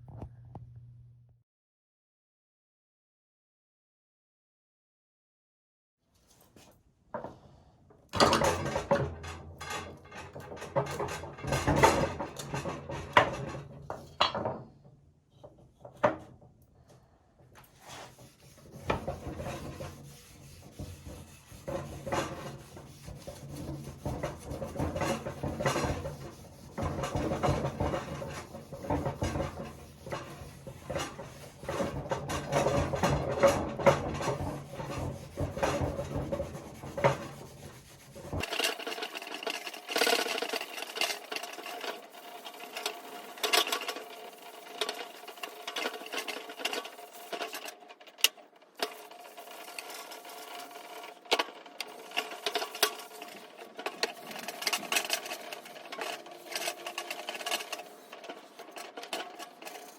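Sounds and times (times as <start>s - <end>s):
hand scraping wood: 17.6s - 47.8s, 48.8s - 59.9s
thin high scraping: 48.8s - 59.9s.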